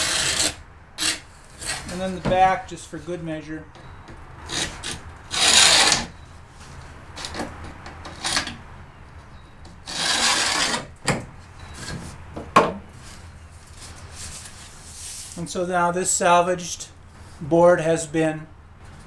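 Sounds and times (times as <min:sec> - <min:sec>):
paint scraper scraping wood: 0:00.0 - 0:03.1, 0:04.5 - 0:08.6, 0:09.7 - 0:10.9.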